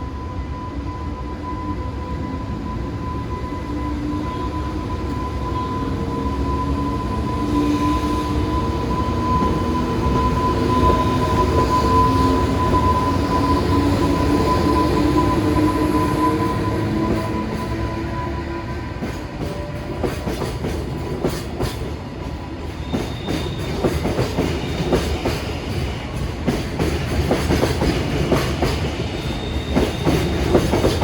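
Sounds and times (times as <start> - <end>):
freight train rumble: 0.0 - 31.0.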